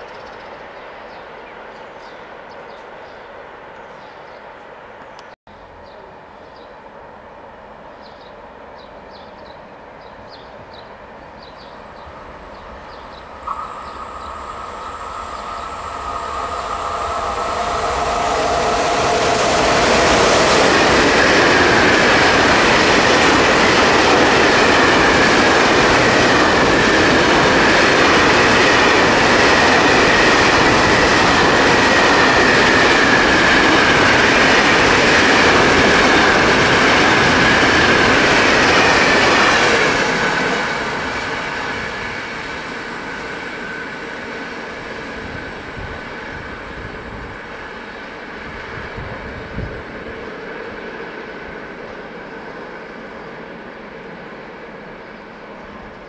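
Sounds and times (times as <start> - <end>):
freight train rolling past: 0.0 - 56.0
high whine of locomotive: 0.0 - 56.0
steady high tone: 11.8 - 36.3.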